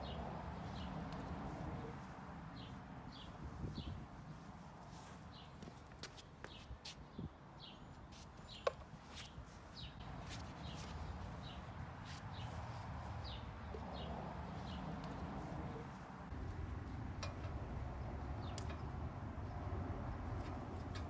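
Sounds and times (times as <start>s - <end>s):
footsteps: 0.0s - 7.0s, 8.0s - 16.3s.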